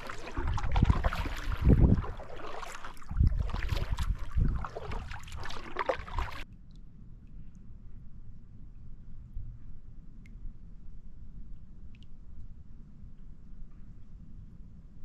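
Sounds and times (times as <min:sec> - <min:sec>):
low rumbling thumps: 0:00.0 - 0:02.3
paddle splashing in water: 0:00.0 - 0:06.4.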